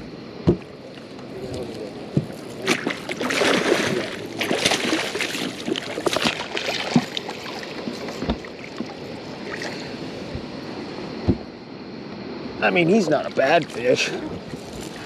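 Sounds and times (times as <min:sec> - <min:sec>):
rustling in a boat: 0:00.0 - 0:11.6, 0:12.8 - 0:15.0
knocks against a boat: 0:00.4 - 0:00.7, 0:02.1 - 0:03.2, 0:07.8 - 0:09.0, 0:11.2 - 0:11.5.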